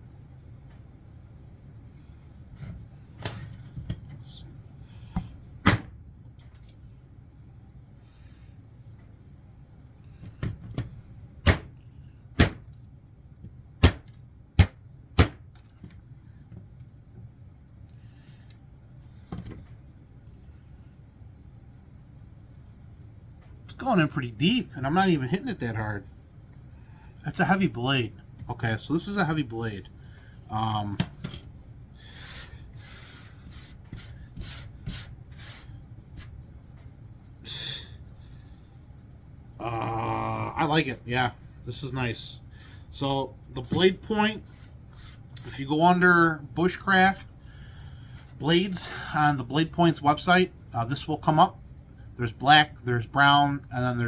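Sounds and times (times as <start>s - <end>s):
knife chopping into wood: 11.5s - 11.7s, 12.4s - 12.6s, 13.8s - 15.4s.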